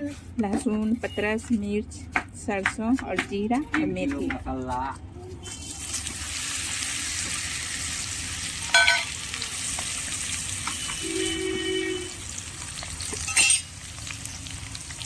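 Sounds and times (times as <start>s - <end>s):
spices sizzling in hot oil: 5.4s - 15.0s.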